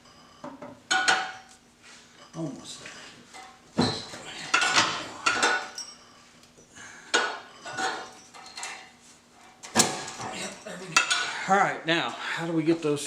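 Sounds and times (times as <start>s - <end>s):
metal tools clinking: 3.8s - 6.7s, 7.5s - 9.0s, 9.7s - 11.4s.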